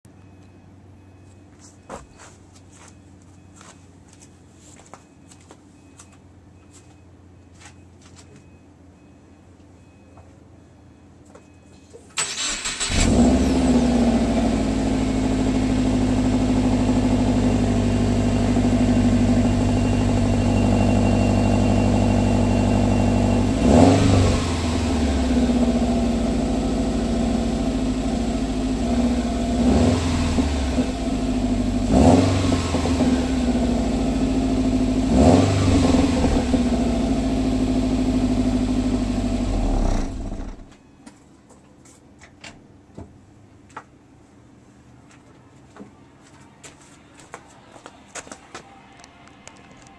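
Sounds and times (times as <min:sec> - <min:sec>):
car engine starting and idling: 0:12.1 - 0:40.7
car engine revving: 0:12.4 - 0:40.7.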